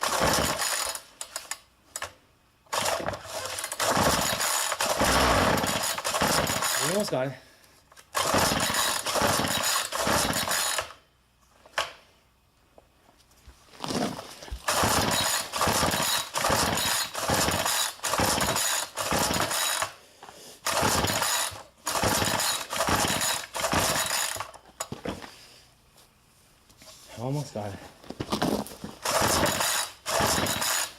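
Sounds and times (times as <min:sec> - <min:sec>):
recoil starter pulls on small engine: 0:00.0 - 0:01.5, 0:02.7 - 0:07.2, 0:13.8 - 0:19.9, 0:20.6 - 0:24.6, 0:29.0 - 0:30.9.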